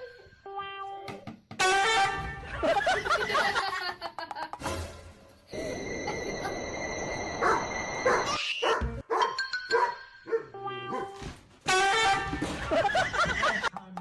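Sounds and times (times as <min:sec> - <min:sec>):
background music: 0:04.5 - 0:05.8
dog barking and yipping: 0:07.4 - 0:11.2.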